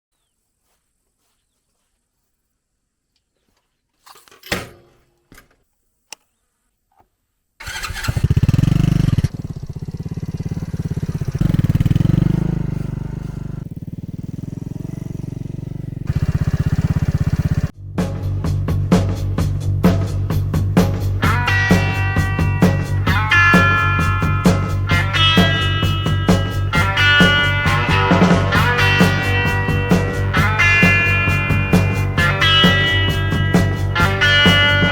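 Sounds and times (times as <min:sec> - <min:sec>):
motorcycle engine revving: 0:07.6 - 0:34.9
music with a beat: 0:18.0 - 0:34.9.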